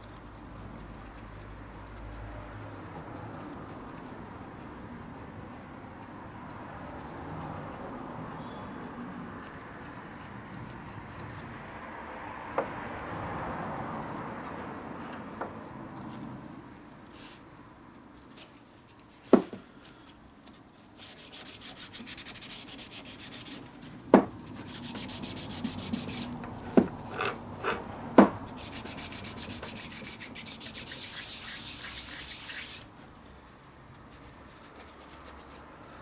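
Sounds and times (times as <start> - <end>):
metal being scrubbed: 21.0 - 32.9.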